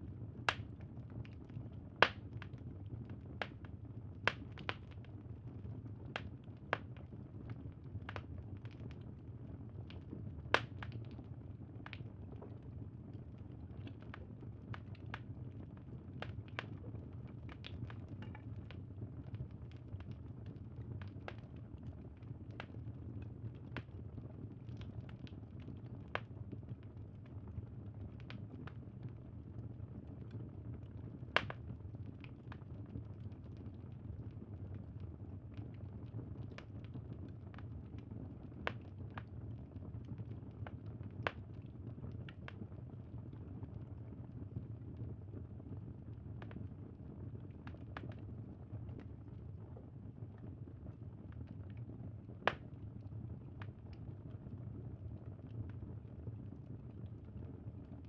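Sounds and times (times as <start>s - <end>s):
low rumble of fire burning: 0.0s - 58.0s
wood fire pops and snaps: 0.5s - 5.1s, 6.0s - 9.0s, 9.9s - 24.0s, 31.4s - 32.7s, 36.3s - 39.4s, 52.4s - 52.8s.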